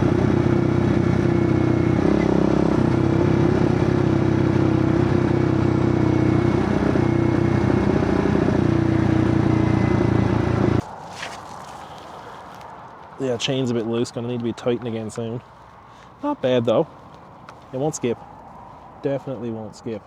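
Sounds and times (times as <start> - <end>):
small motorcycle engine running: 0.0 - 10.8.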